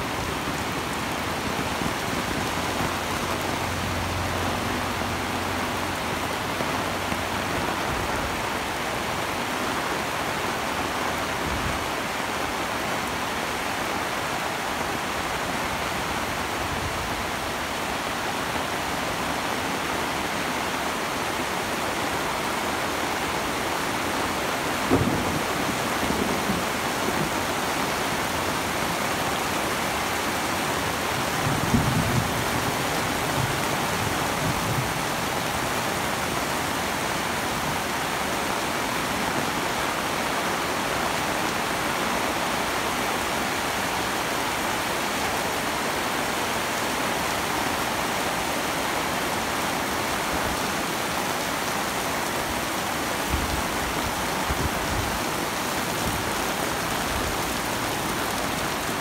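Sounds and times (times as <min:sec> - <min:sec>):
heavy rain on umbrella and street: 0:00.0 - 0:59.0.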